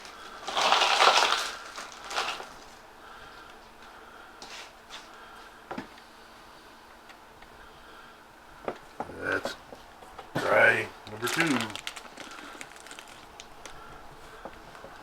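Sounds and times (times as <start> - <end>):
crackling plastic rustling: 0.0 - 2.9, 10.4 - 15.0.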